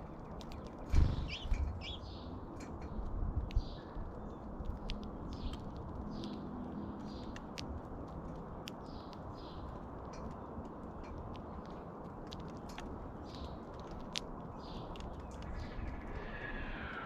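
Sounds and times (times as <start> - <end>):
small birds chirping: 0.0 - 17.0
sharp ticks: 0.1 - 16.2.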